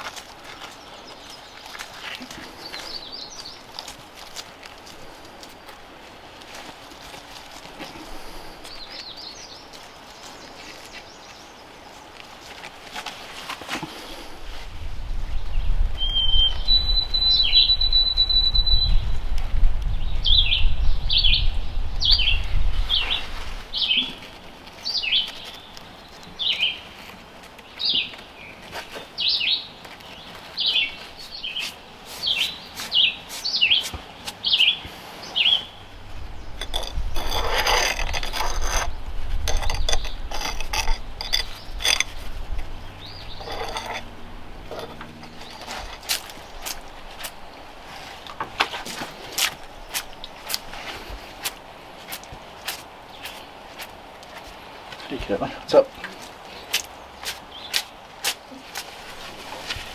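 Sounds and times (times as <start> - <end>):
bird chirping: 15.5 - 19.1, 34.4 - 47.0
low rumble: 35.7 - 46.0
rustling with clicks: 35.8 - 50.8.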